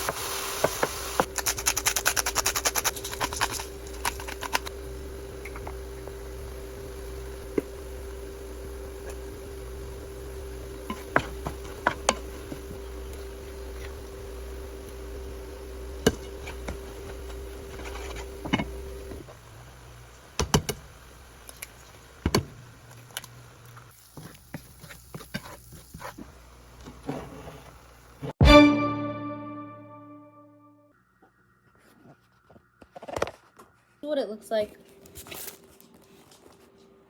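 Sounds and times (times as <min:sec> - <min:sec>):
steady hum: 0:01.2 - 0:21.4.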